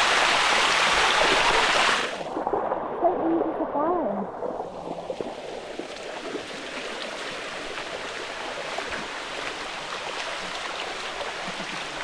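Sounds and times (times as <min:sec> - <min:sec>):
waterfall rushing over rocks: 0:00.0 - 0:04.0.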